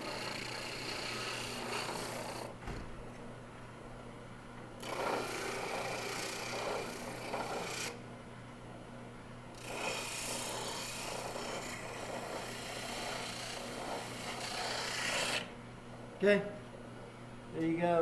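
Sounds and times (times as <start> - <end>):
wood rasping against sanding drum: 0.0 - 2.4, 4.8 - 8.0, 9.6 - 15.5
spindle sander humming: 9.6 - 15.5.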